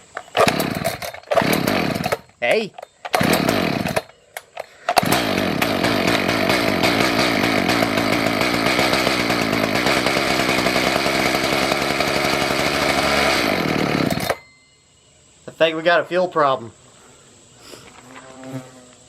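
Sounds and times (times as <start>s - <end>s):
chainsaw engine running: 0.3s - 2.4s, 3.1s - 4.2s, 4.9s - 14.4s.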